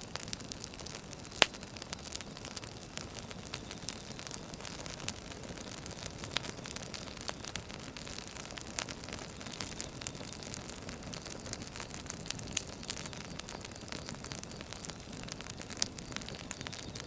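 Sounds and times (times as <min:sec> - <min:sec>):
soft fire hiss: 0:00.0 - 0:17.0
wood fire popping and snapping: 0:00.0 - 0:17.0.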